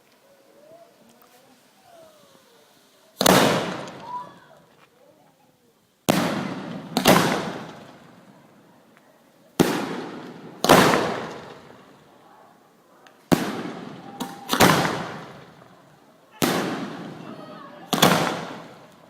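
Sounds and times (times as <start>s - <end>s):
fireworks hiss: 0.0s - 4.8s, 13.2s - 19.0s
fireworks bangs: 1.9s - 4.7s, 6.1s - 8.6s, 9.6s - 12.1s, 13.1s - 19.0s.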